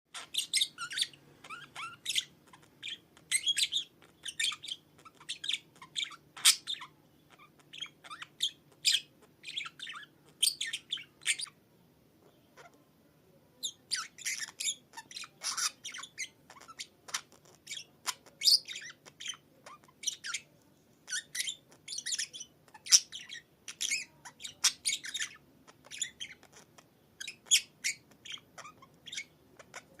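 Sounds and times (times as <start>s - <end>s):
budgerigar chattering: 13.6s - 20.5s, 21.1s - 30.0s.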